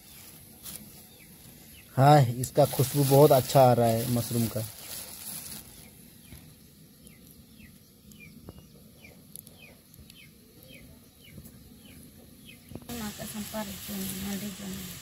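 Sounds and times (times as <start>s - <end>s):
low background noise: 0.0s - 15.0s
faint bird chirps: 4.6s - 12.9s.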